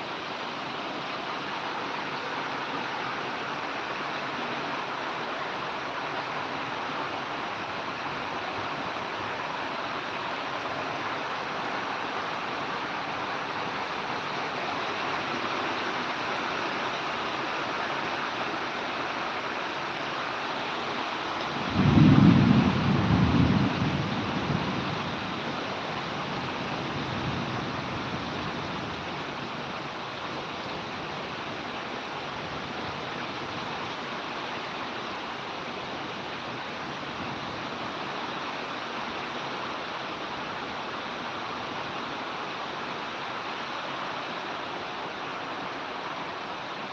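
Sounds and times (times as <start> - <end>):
heavy rain pouring: 0.0 - 46.9
deep thunder clap: 21.7 - 24.2.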